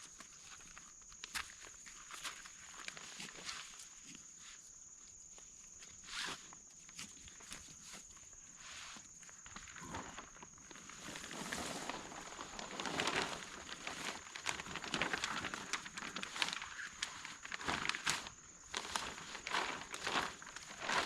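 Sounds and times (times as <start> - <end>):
crunching footsteps: 9.3 - 21.0.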